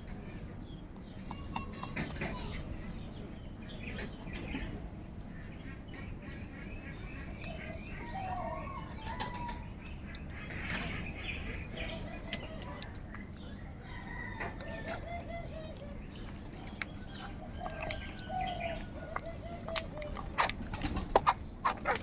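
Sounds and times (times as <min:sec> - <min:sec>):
low background noise: 0:00.0 - 0:22.0
wings flapping: 0:19.8 - 0:22.0.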